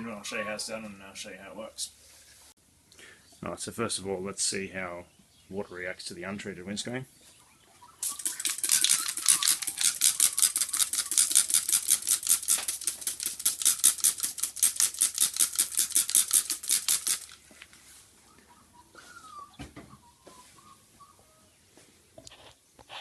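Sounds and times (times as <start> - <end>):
spray bottle squirting: 8.0 - 17.4.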